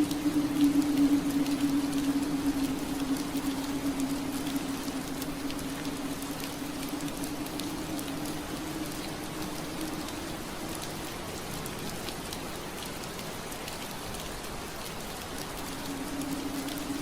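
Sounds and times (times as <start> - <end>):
low steady hum: 0.0 - 13.4
rain pattering on window glass: 0.0 - 17.0.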